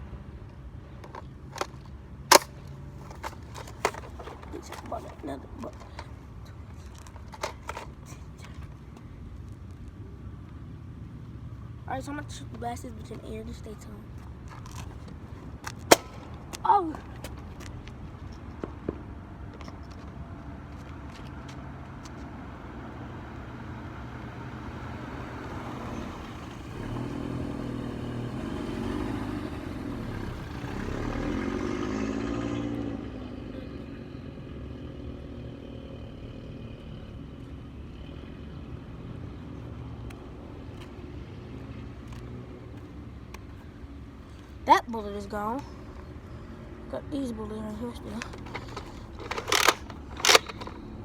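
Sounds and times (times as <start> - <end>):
vehicle engine passing by: 21.3 - 43.0.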